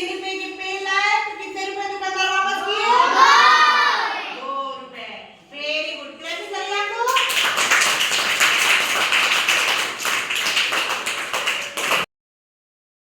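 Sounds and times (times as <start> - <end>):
children clapping: 7.1 - 12.1.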